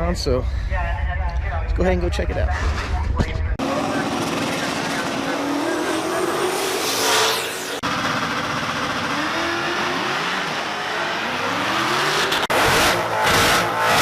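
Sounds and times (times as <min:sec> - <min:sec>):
car engines revving hard: 0:03.6 - 0:14.0.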